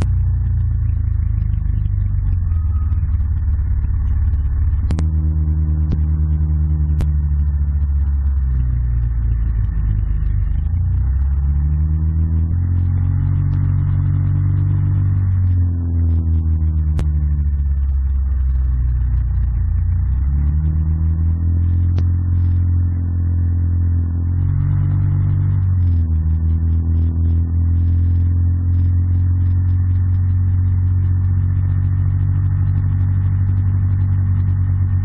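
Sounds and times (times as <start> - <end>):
atv engine running: 0.0 - 35.0.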